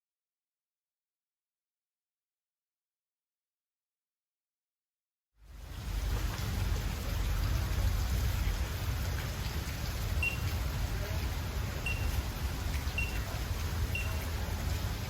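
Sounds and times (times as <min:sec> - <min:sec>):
waterfall rushing and splashing: 0:05.5 - 0:15.0.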